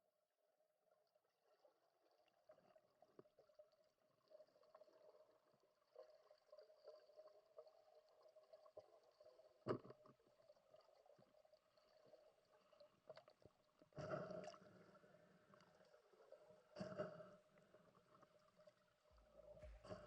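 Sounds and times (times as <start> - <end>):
very faint water: 0.0 - 20.0
small clicks and ticks: 2.2 - 14.6.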